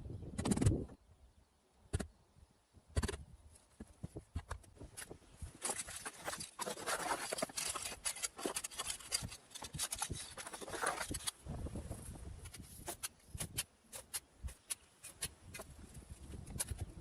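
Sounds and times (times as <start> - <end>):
shovel scraping sand: 5.6 - 11.4, 12.4 - 15.8.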